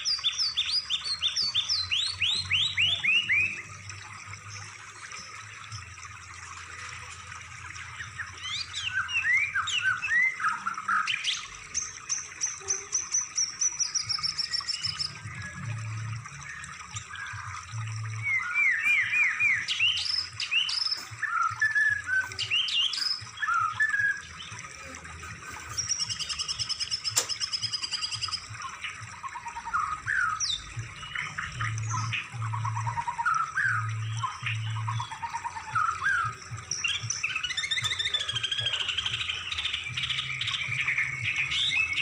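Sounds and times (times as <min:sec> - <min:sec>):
songbirds singing: 0:00.0 - 0:42.0.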